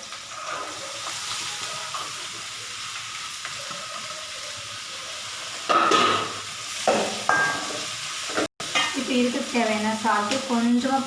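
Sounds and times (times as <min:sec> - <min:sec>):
onions frying in oil: 0:00.0 - 0:11.0
loud sizzle burst: 0:04.9 - 0:11.0.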